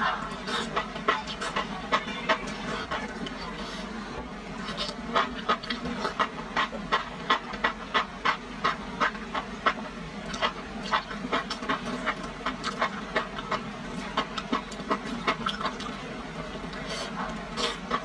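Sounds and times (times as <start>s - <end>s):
wet sticky chewing: 4.6s - 16.0s.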